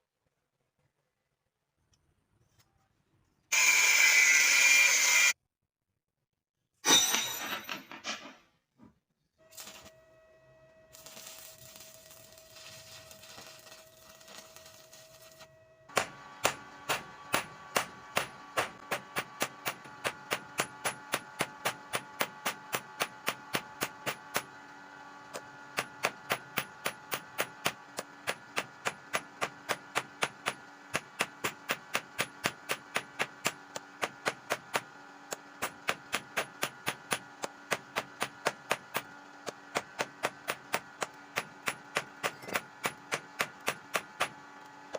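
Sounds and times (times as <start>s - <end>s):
hammer striking metal: 6.8s - 8.4s, 15.9s - 24.5s.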